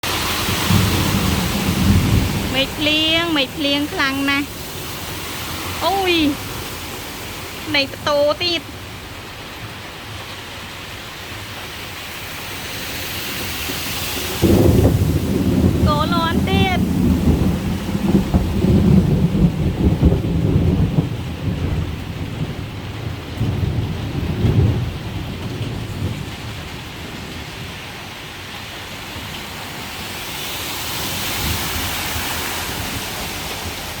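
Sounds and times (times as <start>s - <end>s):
thunder rumbling: 0.0s - 9.3s, 13.3s - 30.2s
steady rainfall: 0.0s - 34.0s.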